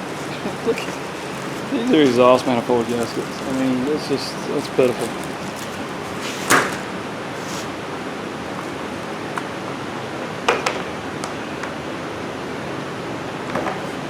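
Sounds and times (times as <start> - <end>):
packaging rustle: 0.0 - 9.7
background hiss: 0.0 - 9.8.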